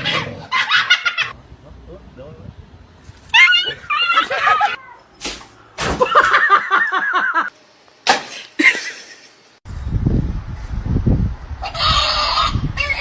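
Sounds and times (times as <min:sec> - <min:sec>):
low rumble: 0:09.7 - 0:11.6.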